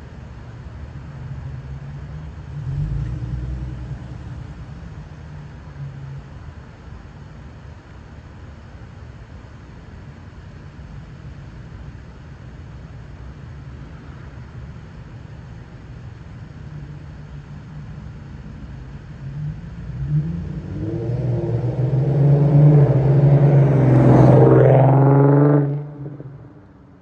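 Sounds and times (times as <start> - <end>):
car exhaust rumble driving by: 0.6 - 7.8, 15.5 - 27.0.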